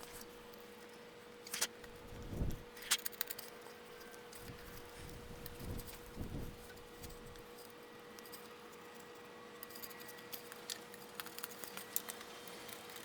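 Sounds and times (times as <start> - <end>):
steady low hum: 0.0 - 3.1, 3.7 - 8.2.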